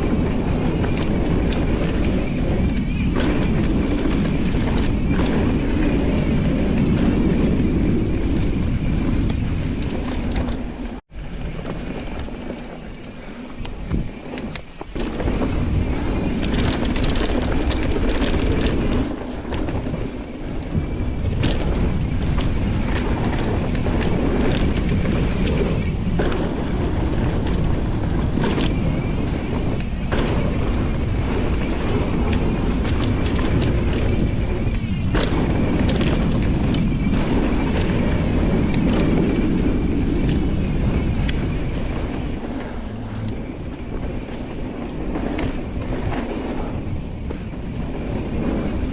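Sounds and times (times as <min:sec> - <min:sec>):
bike clattering over bumps: 0:00.0 - 0:48.9
bike tyre noise: 0:00.0 - 0:48.9
wind on microphone: 0:00.0 - 0:48.9.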